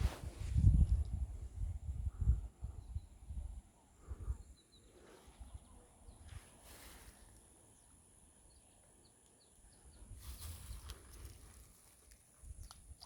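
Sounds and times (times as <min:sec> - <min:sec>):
rustling noise: 0:00.0 - 0:00.7
faint bird chirps: 0:02.7 - 0:11.0.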